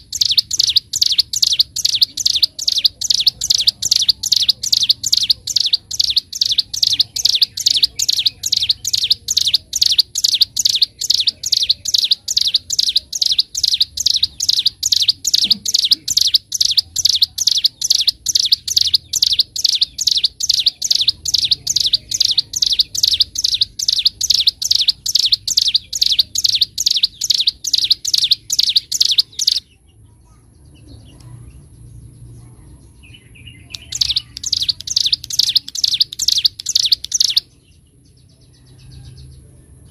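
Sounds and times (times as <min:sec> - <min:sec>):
bird singing high chirping notes: 0:00.0 - 0:29.8, 0:33.0 - 0:38.2.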